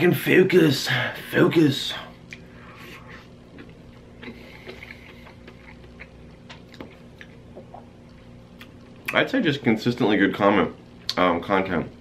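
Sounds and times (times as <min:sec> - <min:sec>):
steady low hum: 0:00.0 - 0:12.0
person chewing: 0:02.2 - 0:09.2.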